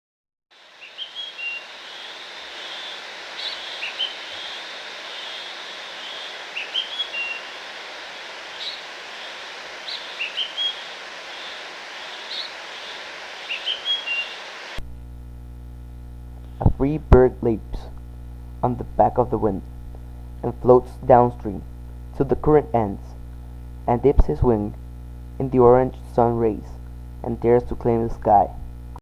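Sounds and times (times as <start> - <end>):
outdoor background hiss: 0.5 - 29.0
songbird chirping: 0.6 - 14.8.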